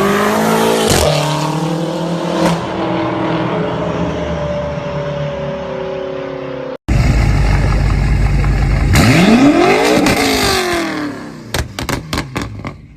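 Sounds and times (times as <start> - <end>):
car engine accelerating: 0.0 - 12.7
loud exhaust rumble: 6.9 - 10.4.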